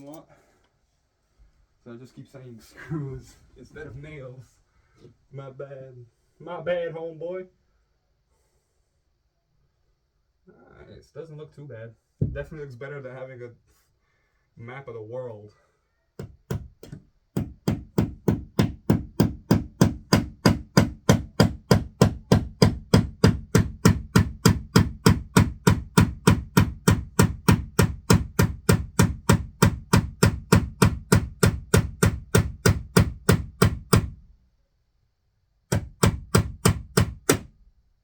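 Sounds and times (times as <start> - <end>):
hammer driving nail into wall: 16.2 - 34.2, 35.7 - 37.5.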